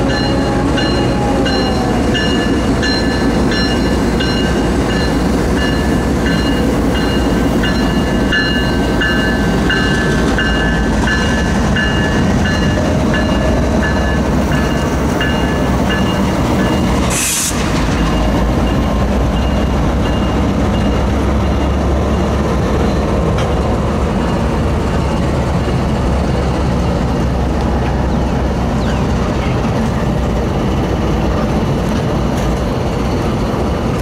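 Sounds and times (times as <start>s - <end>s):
crossing bell ringing: 0.0s - 17.0s, 17.8s - 23.3s
diesel locomotives rumbling: 0.0s - 34.0s
sharp hiss: 17.0s - 17.9s.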